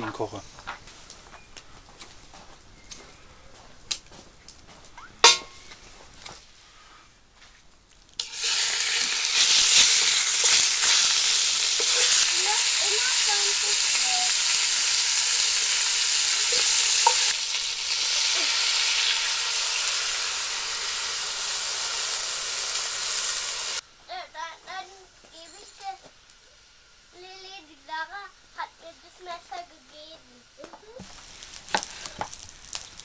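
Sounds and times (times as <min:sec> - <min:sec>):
chicken sizzling in hot oil: 0:05.2 - 0:05.5, 0:08.2 - 0:23.8, 0:30.9 - 0:33.0.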